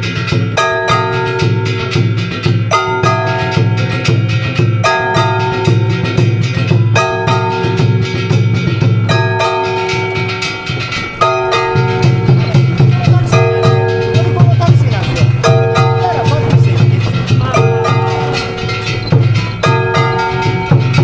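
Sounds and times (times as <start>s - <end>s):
drums and bells rapid rhythm: 0.0s - 21.0s
pitched melody line: 8.6s - 21.0s.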